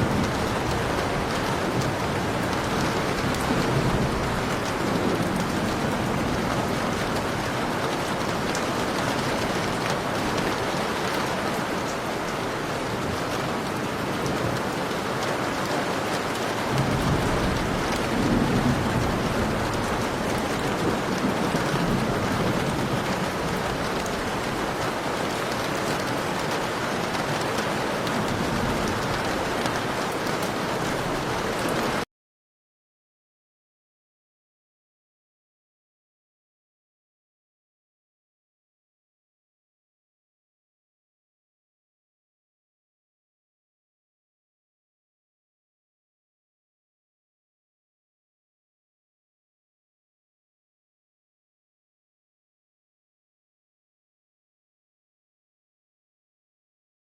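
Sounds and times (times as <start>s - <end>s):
rolling thunder: 0.0s - 11.2s, 16.7s - 26.1s
heavy rain pouring: 0.0s - 32.1s.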